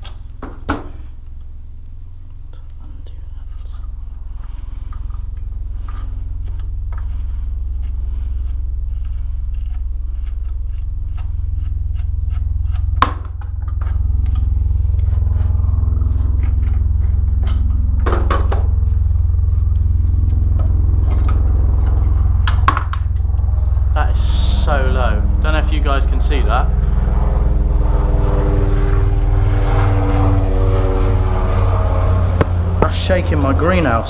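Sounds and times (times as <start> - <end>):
small motorbike engine idling: 3.5 - 29.1.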